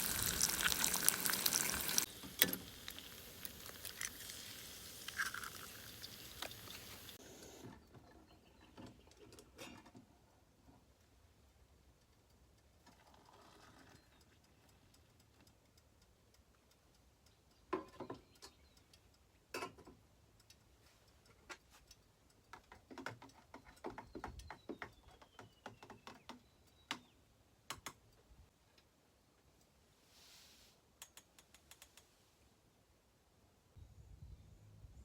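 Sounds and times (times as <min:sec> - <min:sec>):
light ticks: 0:14.0 - 0:23.8.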